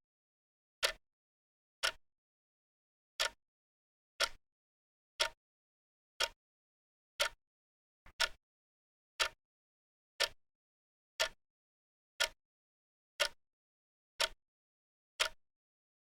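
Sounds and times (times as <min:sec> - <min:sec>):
clock-like timer ticking: 0:04.2 - 0:04.4, 0:08.1 - 0:08.4.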